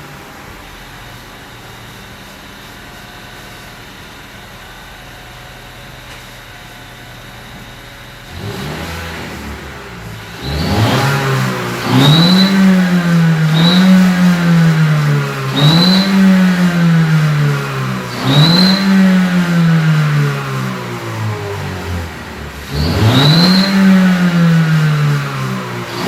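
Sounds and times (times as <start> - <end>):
car engine revving: 7.8 - 26.0
exhaust turbo whistle: 8.2 - 26.0.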